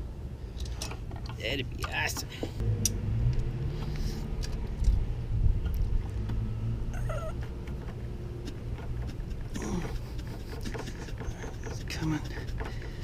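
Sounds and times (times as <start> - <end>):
cat meowing: 7.0 - 7.4.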